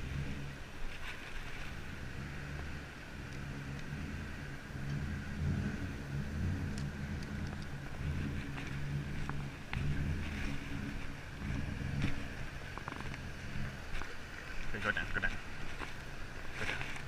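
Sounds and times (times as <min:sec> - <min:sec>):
vehicle engine rumbling: 0:00.0 - 0:17.0
faint ticks: 0:06.7 - 0:07.8.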